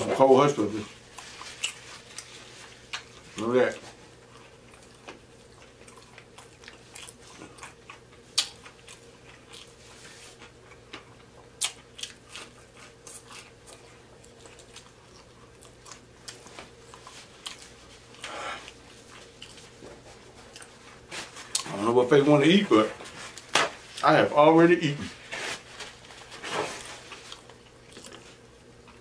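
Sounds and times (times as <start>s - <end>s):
person chewing and lip smacking: 1.1s - 3.4s, 4.2s - 21.8s, 27.2s - 29.0s.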